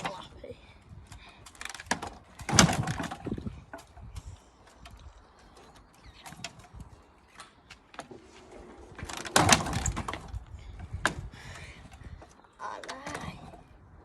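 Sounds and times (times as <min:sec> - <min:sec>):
dirt bike kickstart clicks and knocks: 0:01.4 - 0:05.1, 0:09.0 - 0:10.3.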